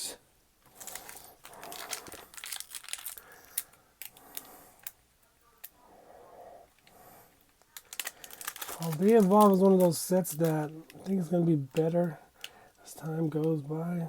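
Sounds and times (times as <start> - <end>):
foil wrapper crinkling and tearing: 0.7 - 5.0, 7.6 - 12.6.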